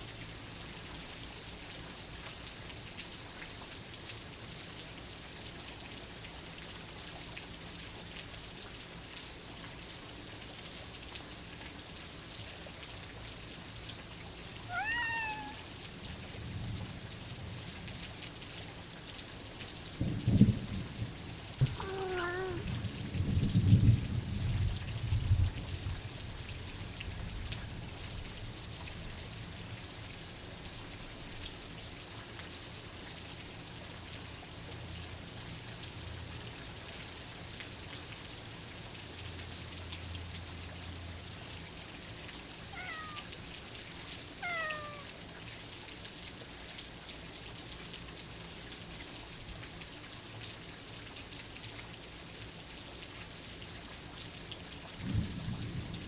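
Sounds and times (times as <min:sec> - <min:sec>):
steady rain: 0:00.0 - 0:56.0
cat meowing: 0:14.6 - 0:15.7, 0:21.6 - 0:22.8, 0:42.7 - 0:43.4, 0:44.4 - 0:45.2
low thunder rumble: 0:20.0 - 0:25.6, 0:55.0 - 0:56.0.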